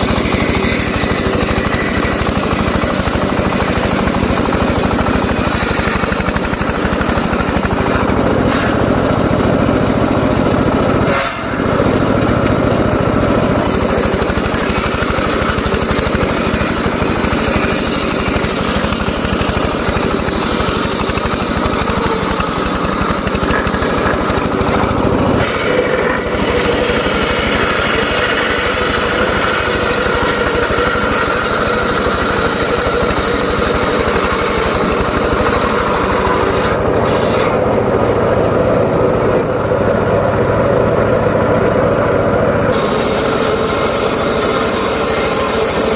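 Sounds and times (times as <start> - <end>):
circular saw cutting wood: 0.0 - 45.9.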